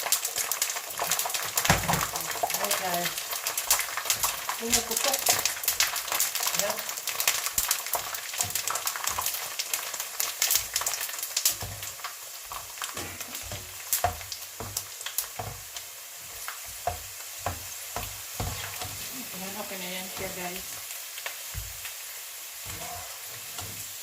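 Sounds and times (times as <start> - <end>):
sharp crackling pops: 0.0 - 15.8
macaroni sizzling in hot oil: 0.0 - 24.0.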